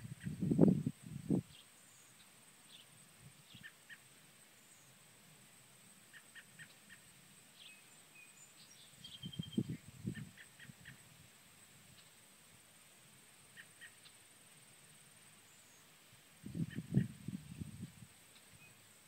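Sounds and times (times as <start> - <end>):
small birds chirping: 1.5 - 5.0, 6.1 - 11.0, 13.5 - 14.2, 15.3 - 19.0
bird whistle and trill: 7.6 - 9.8.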